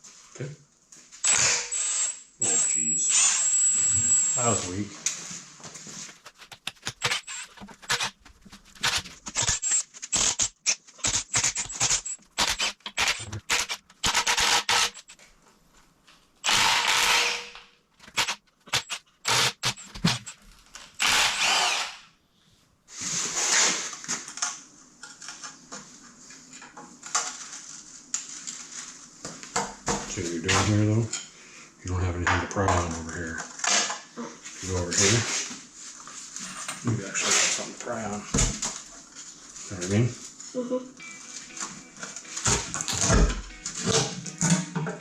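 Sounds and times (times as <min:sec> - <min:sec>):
handheld power tool running: 0:06.7 - 0:08.2, 0:08.8 - 0:15.1, 0:16.4 - 0:20.4, 0:21.0 - 0:22.1.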